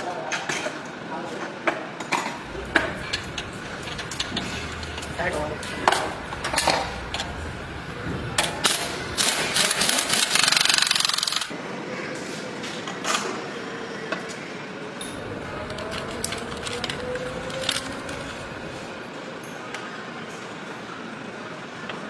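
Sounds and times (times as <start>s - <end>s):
workshop background noise: 0.0s - 22.0s
power tool rattling: 2.4s - 11.5s.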